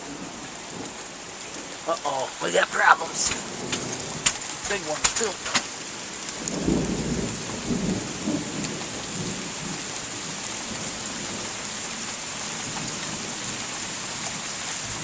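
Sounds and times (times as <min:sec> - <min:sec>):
steady rain hiss: 0:00.0 - 0:15.0
thunder rumble: 0:02.2 - 0:09.8.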